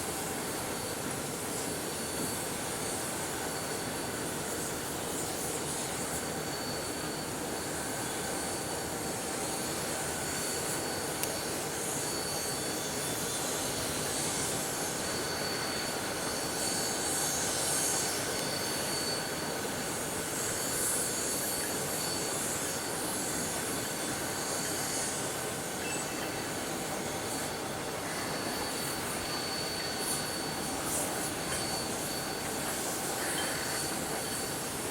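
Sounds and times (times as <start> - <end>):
high squeal from wheels: 0.1 - 34.9.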